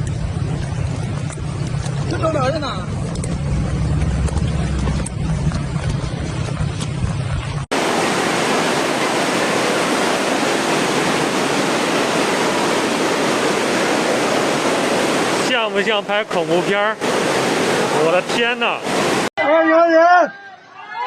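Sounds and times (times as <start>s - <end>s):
low rumbling noise: 0.0s - 15.5s
rushing floodwater roar: 0.0s - 19.3s.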